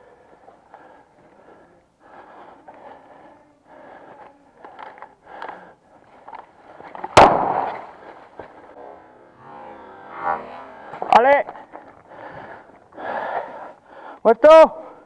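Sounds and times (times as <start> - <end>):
loud grenade bang: 7.2 - 7.9.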